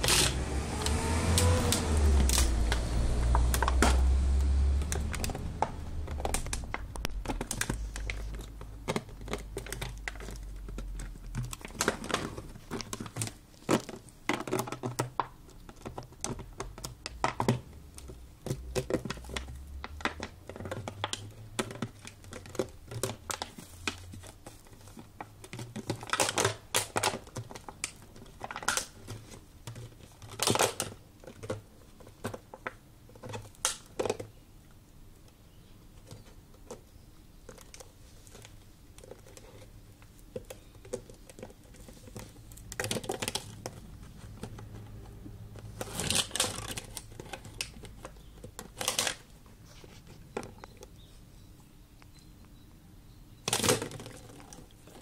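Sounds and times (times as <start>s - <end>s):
dog chewing a plastic bottle: 4.8s - 32.7s.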